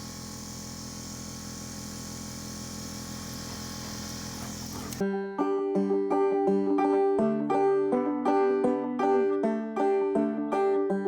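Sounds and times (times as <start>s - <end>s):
air compressor running: 0.0s - 5.0s
banjo music: 4.4s - 11.0s.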